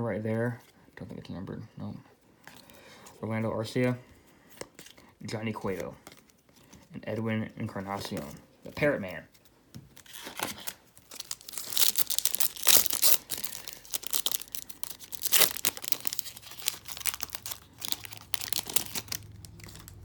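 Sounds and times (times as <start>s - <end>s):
plastic wrapper tearing and crinkling: 9.9s - 20.0s.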